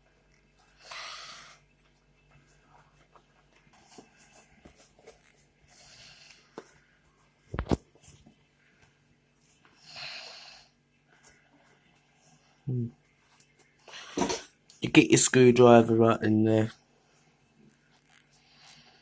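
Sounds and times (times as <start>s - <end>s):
person breathing: 0.8s - 1.6s, 9.8s - 10.8s, 13.8s - 14.4s.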